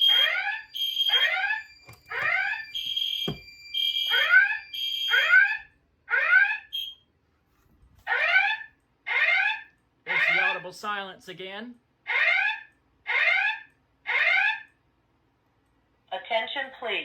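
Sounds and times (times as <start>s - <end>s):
rising sweep alert tones: 0.0s - 5.6s
high-pitched alarm tone: 0.0s - 7.0s
dull thump: 3.2s - 3.5s.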